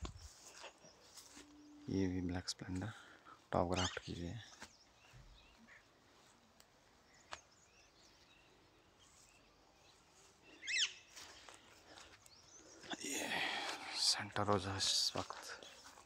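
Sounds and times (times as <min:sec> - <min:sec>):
birds chirping: 0:00.0 - 0:16.0
bird call with sweeping notes: 0:10.6 - 0:11.2.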